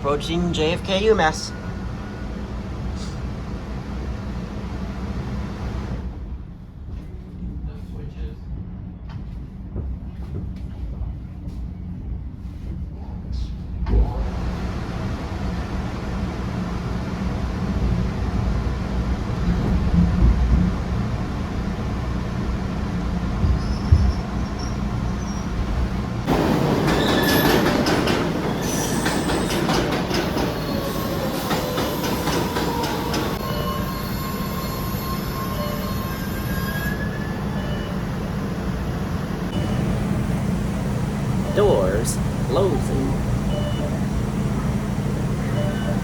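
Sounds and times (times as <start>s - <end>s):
subway train rumbling: 0.0s - 46.0s
wheels squealing: 23.5s - 38.2s
wheels clacking over rail joints: 26.2s - 33.4s.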